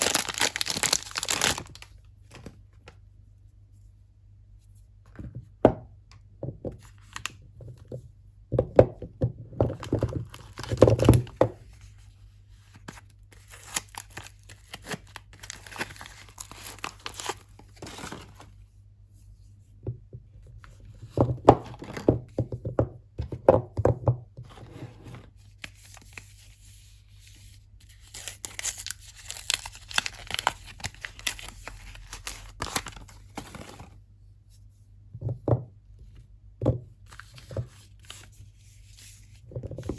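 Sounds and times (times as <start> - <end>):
packaging tearing and crinkling: 0.0 - 2.0, 10.2 - 11.3, 13.4 - 18.4, 27.9 - 33.8.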